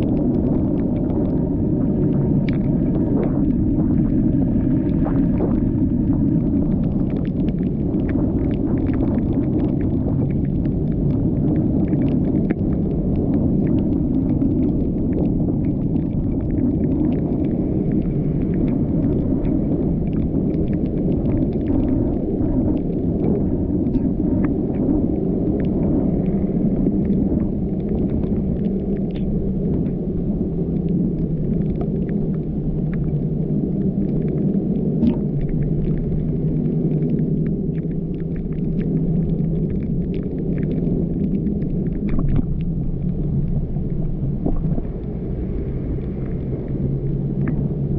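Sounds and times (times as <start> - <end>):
car driving on wet road: 42.2 - 47.9.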